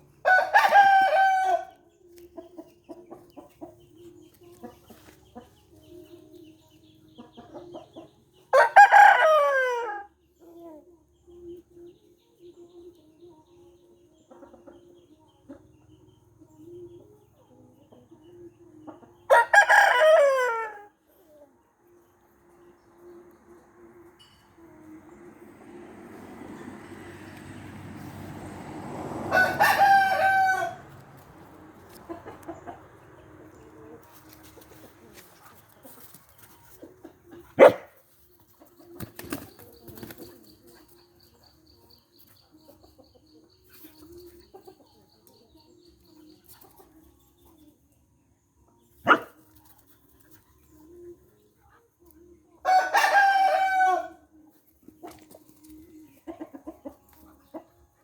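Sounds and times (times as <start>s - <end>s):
rooster crowing: 0.2s - 1.8s, 8.5s - 10.1s, 19.3s - 20.9s, 29.2s - 31.0s, 52.6s - 54.2s.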